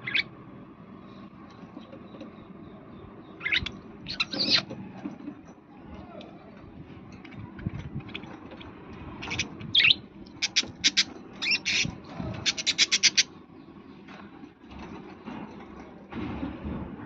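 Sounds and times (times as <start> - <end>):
parrot chirping and squawking: 0.0 - 0.3, 3.4 - 4.7, 9.2 - 13.4.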